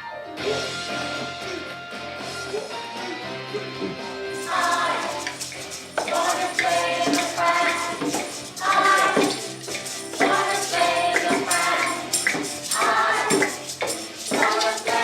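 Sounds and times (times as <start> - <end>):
instrumental accompaniment: 0.0 - 15.0
children singing: 4.4 - 15.0
jingling percussion shaken: 4.4 - 15.0.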